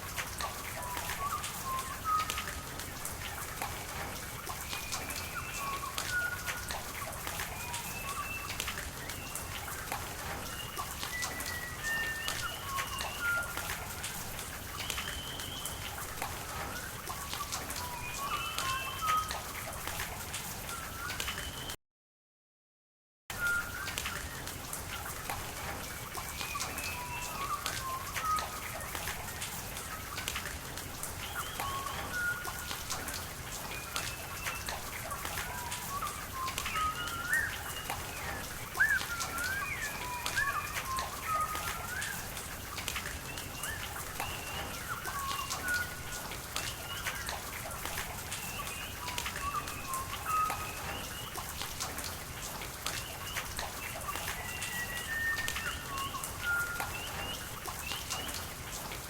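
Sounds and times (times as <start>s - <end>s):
running water: 0.0s - 21.7s, 23.3s - 59.0s
rain hiss and pattering drops: 0.0s - 21.8s, 23.3s - 59.0s
birds chirping: 35.5s - 42.3s.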